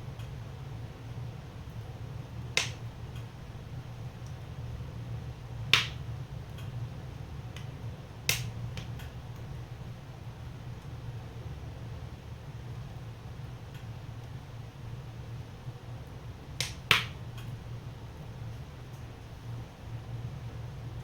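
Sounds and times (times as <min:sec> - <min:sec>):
low rumble of burning fire: 0:00.0 - 0:21.0
wood fire crackling: 0:00.1 - 0:09.8, 0:15.7 - 0:19.8.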